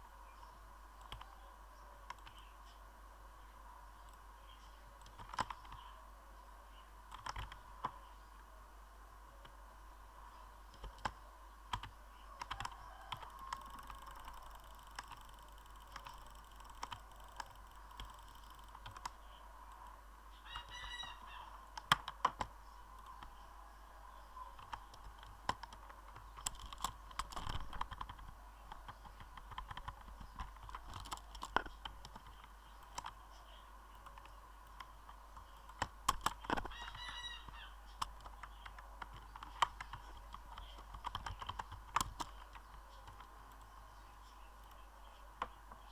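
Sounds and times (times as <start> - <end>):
faint steady hum: 0.0 - 45.9
irregular clicks and taps: 21.7 - 23.4, 24.6 - 33.2, 34.0 - 37.0, 37.9 - 43.8.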